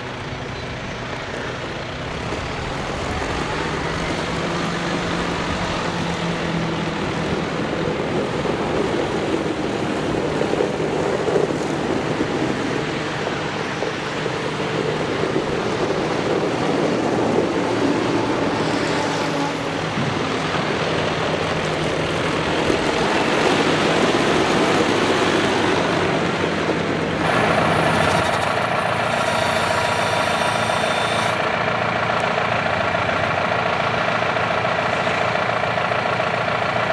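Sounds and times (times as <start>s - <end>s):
tractor diesel engine running: 0.0s - 36.9s
high steady whine: 11.4s - 32.4s.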